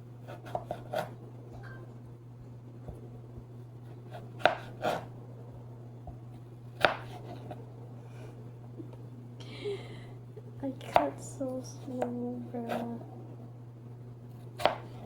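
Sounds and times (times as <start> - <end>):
steady low hum: 0.0 - 15.0
knife chopping potato: 0.2 - 1.8, 2.8 - 5.2, 6.1 - 7.6, 14.3 - 15.0.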